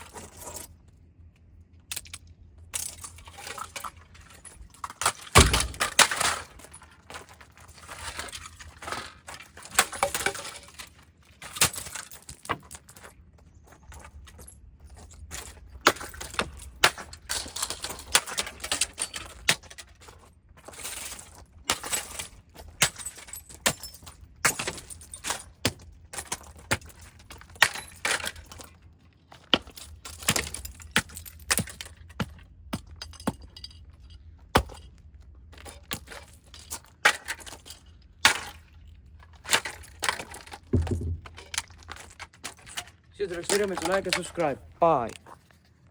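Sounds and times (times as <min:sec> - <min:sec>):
broken pieces clinking and rattling: 0:01.9 - 0:34.9
robot vacuum being smashed: 0:05.2 - 0:06.4.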